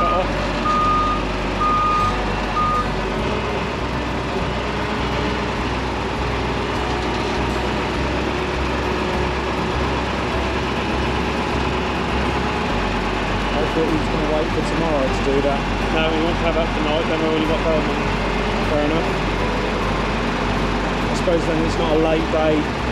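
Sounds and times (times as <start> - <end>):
electronic beeps: 0.0 - 2.9
heavy machinery engine running: 0.0 - 22.9.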